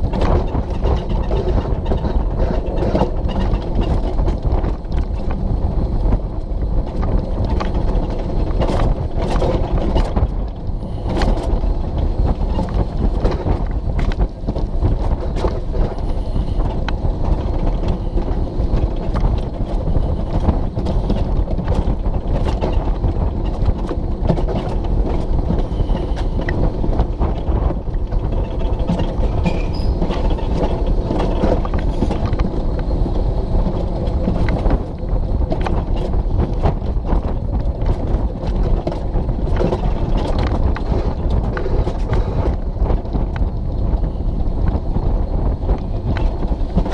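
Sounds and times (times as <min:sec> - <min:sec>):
coaster wheels rumbling and rattling: 0:00.0 - 0:46.9.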